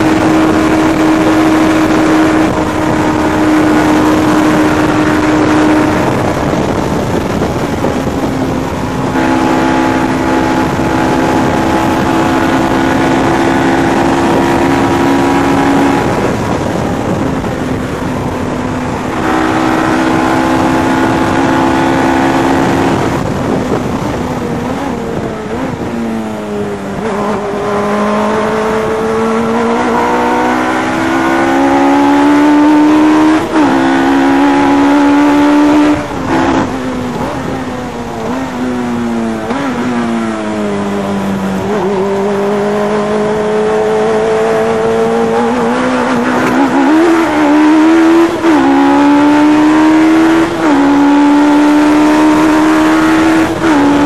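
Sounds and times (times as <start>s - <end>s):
engine revving high: 0.0s - 54.0s
wind rush: 0.0s - 54.0s.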